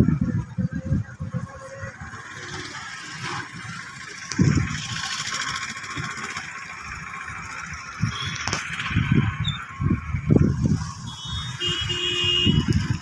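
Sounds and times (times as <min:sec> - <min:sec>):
wind buffeting microphone: 0:00.0 - 0:02.3, 0:04.2 - 0:05.0, 0:07.8 - 0:13.0.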